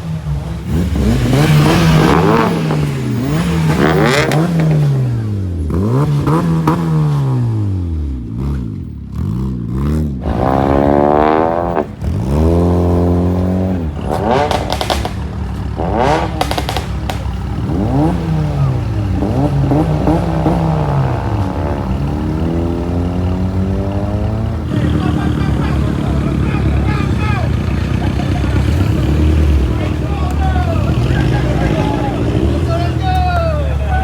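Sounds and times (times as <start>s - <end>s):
car engine revving: 0.0s - 34.0s
sharp cracks: 14.0s - 17.7s.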